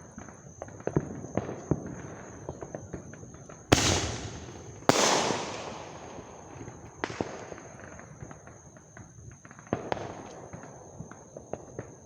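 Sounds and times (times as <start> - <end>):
fireworks crackles: 0.0 - 11.7
fireworks pops: 2.5 - 10.5
fireworks bang: 3.7 - 8.4.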